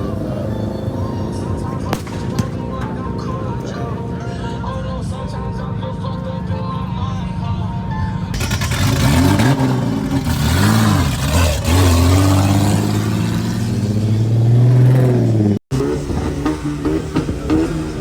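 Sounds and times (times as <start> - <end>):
car engine revving hard: 8.3 - 18.0.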